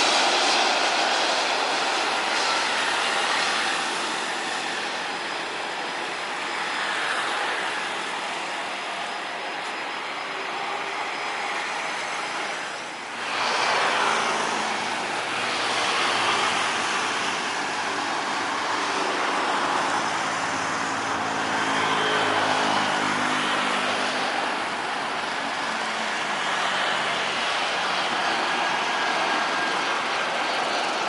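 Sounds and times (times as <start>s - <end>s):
jet airliner engine rush: 0.0s - 31.0s.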